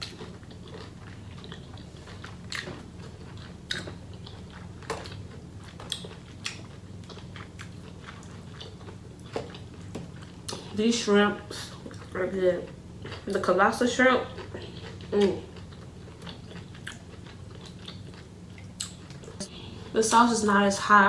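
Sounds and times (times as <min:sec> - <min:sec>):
chewing and mouth smacking: 0:00.0 - 0:10.7, 0:14.3 - 0:19.5
steady low hum: 0:00.0 - 0:21.0.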